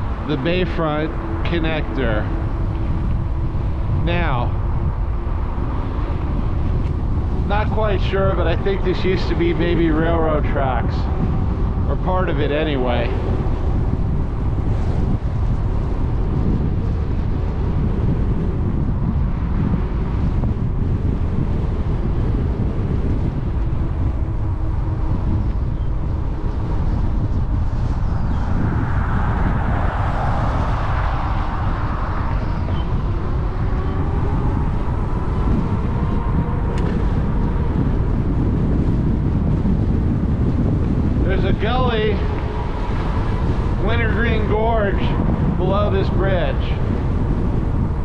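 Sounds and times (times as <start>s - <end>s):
road and tyre noise: 0.0s - 48.0s
wind buffeting microphone: 0.0s - 48.0s
rushing sound: 27.6s - 38.3s.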